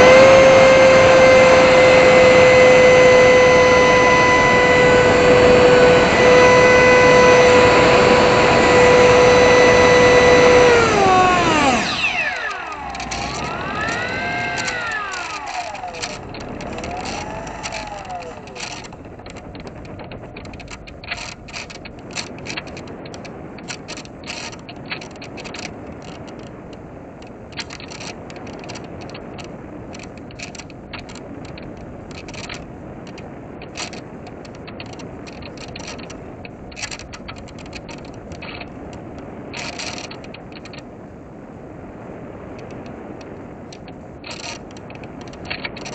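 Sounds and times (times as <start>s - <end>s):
servos whirring: 0.0s - 26.4s
airflow rushing: 1.9s - 35.2s.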